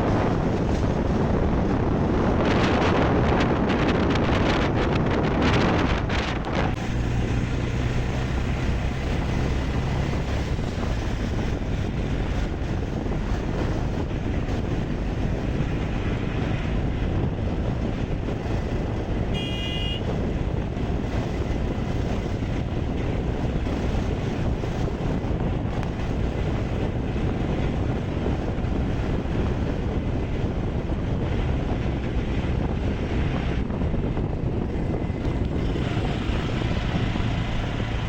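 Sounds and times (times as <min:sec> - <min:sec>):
low engine hum: 0:00.0 - 0:38.0
road and wind noise: 0:00.0 - 0:38.0
short high-pitched horn toot: 0:19.3 - 0:20.0.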